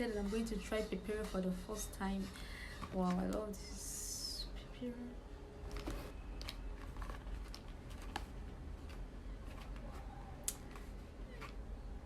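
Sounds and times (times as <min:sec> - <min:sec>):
packaging clicks and crinkles: 0:05.6 - 0:12.0.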